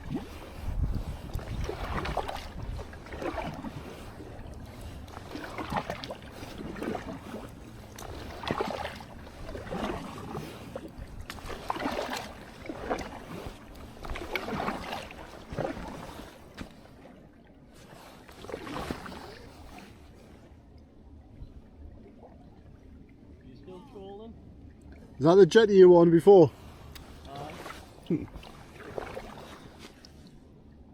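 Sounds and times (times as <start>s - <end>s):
low wind rumble: 0.0s - 16.6s
paddle strokes splashing water: 0.0s - 20.6s, 24.8s - 30.6s.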